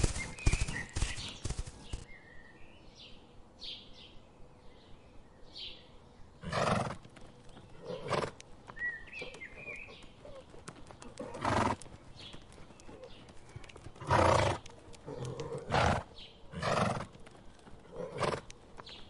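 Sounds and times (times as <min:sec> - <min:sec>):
horses calling loudly: 0:07.7 - 0:08.4, 0:09.2 - 0:12.1, 0:13.8 - 0:18.6.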